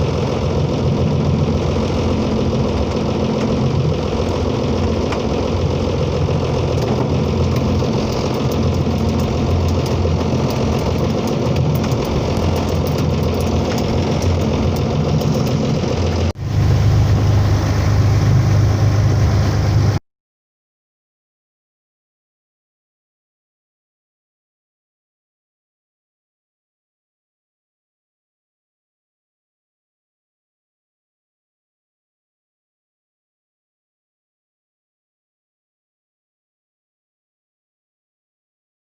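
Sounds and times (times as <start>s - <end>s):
motorboat engine: 0.0s - 20.0s.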